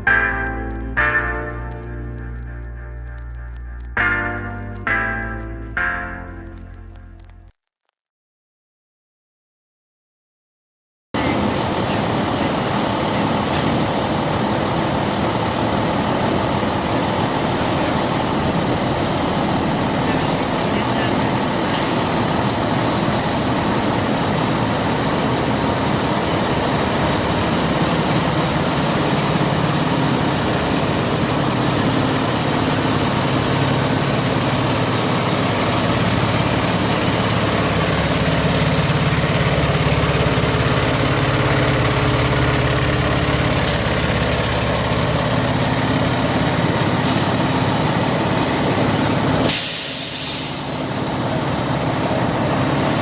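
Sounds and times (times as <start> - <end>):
fire truck engine running: 0.0 - 7.3, 11.2 - 53.0
traffic noise: 11.2 - 53.0
air brake hissing: 43.6 - 44.8, 47.0 - 47.5, 49.4 - 51.0.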